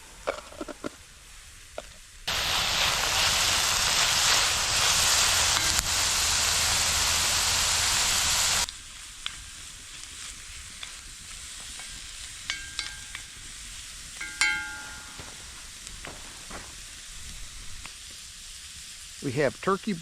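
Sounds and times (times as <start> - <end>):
vegetables sizzling in oil: 1.5 - 20.0
ringing clink: 12.5 - 13.4, 14.2 - 15.6.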